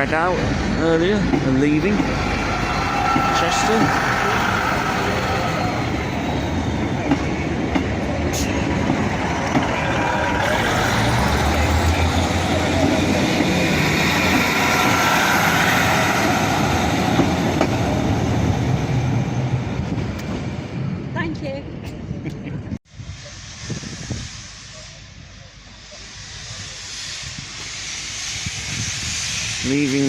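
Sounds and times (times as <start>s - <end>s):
wheel and rail noise: 0.0s - 22.4s
diesel train engines under load: 0.0s - 30.0s.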